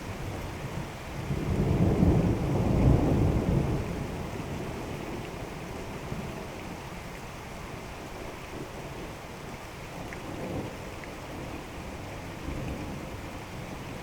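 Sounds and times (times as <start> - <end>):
steady rain falling: 0.0 - 14.0
thunder rumbling: 1.3 - 4.8.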